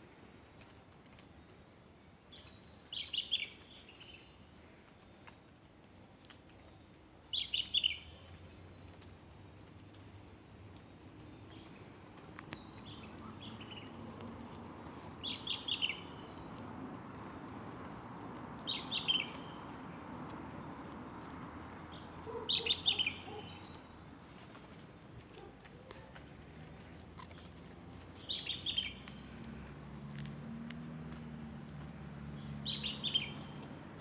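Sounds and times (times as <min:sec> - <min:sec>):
songbird chirping: 0:07.3 - 0:24.6, 0:25.2 - 0:33.7.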